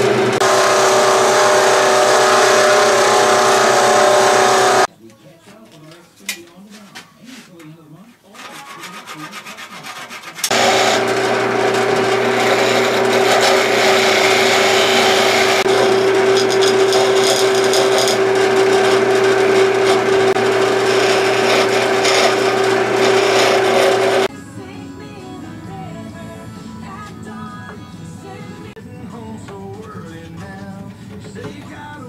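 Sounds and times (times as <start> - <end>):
electric power tool motor hum: 0.0 - 4.9, 10.5 - 24.3
tool rasping against wood: 0.4 - 4.9, 8.4 - 24.3.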